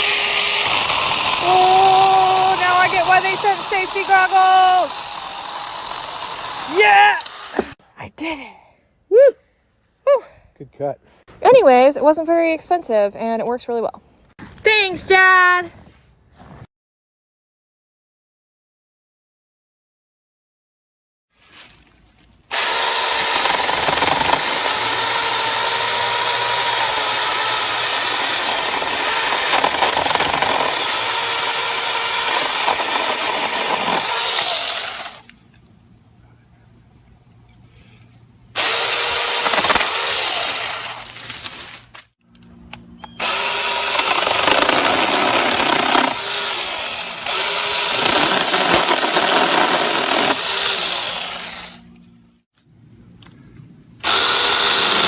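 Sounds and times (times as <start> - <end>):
mini chainsaw cutting wood: 0.0 - 7.8, 22.5 - 35.4, 38.6 - 41.9, 43.1 - 52.0, 54.0 - 55.0.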